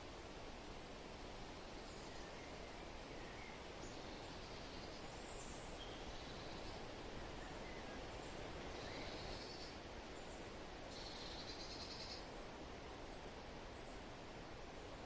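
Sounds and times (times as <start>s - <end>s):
soft wind: 0.0s - 15.0s
faint bird chirps: 1.8s - 6.8s, 8.7s - 12.3s.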